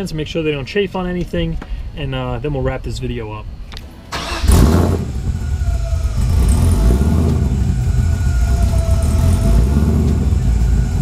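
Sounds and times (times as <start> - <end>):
faint high whine: 0.0 - 11.0
car engine idling: 4.2 - 11.0.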